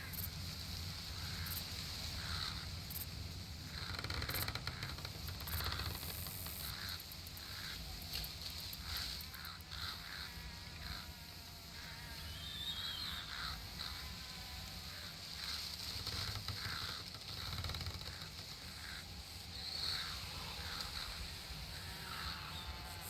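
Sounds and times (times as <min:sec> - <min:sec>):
insects buzzing: 0:00.0 - 0:23.0
bird chirps: 0:12.3 - 0:13.5.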